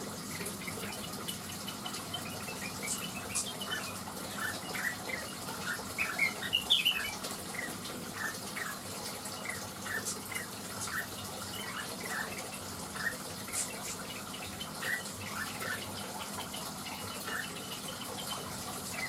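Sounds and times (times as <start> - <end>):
bird chirping and whistling: 2.1 - 8.8, 9.4 - 12.4.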